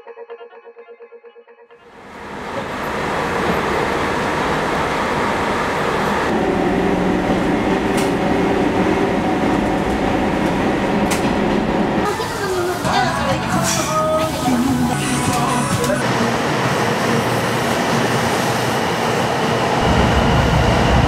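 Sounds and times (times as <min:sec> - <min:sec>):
train running on track: 0:01.8 - 0:21.0
low hum: 0:19.8 - 0:21.0.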